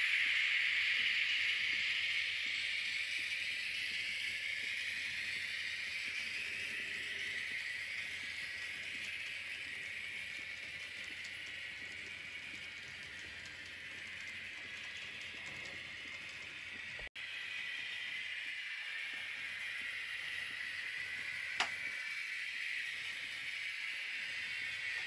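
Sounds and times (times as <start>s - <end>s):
train wheels on rails: 0.0s - 17.1s.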